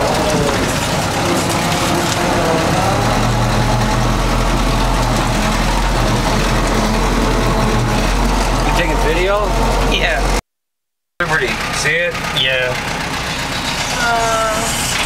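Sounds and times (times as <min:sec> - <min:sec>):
jeep engine running: 0:00.0 - 0:10.4, 0:11.2 - 0:15.0
steady low hum: 0:00.0 - 0:10.4.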